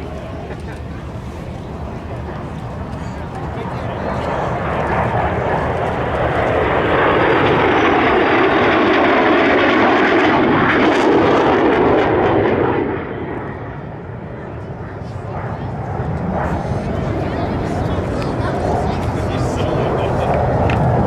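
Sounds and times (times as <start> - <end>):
aircraft flying past: 0.0 - 21.0.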